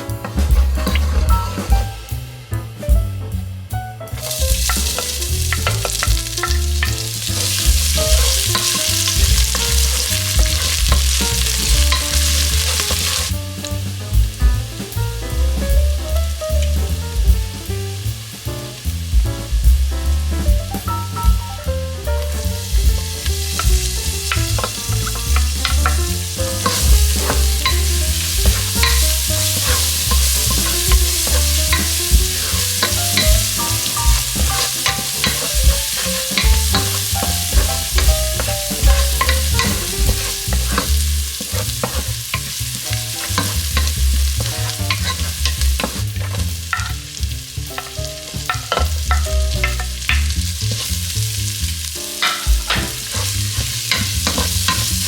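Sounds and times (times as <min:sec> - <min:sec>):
utensil scraping a pan: 0:00.2 - 0:01.7, 0:04.2 - 0:13.3, 0:23.2 - 0:47.1, 0:52.2 - 0:55.0
food sizzling in a pan: 0:04.1 - 0:55.0.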